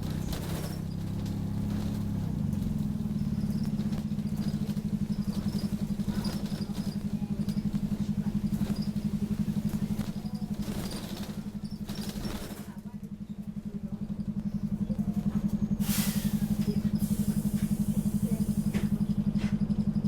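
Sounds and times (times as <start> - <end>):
bus diesel engine throbbing: 0.0 - 20.0
faint high squeaks: 0.2 - 13.4.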